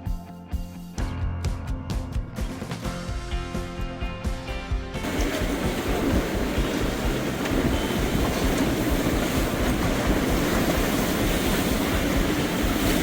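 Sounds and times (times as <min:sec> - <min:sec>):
background music: 0:00.0 - 0:13.0
storm wind rumbling on microphone: 0:05.0 - 0:13.0.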